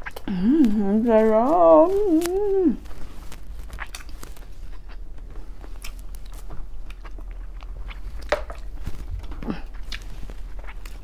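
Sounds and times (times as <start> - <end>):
person chewing with mouth clicks: 0.0 - 11.0.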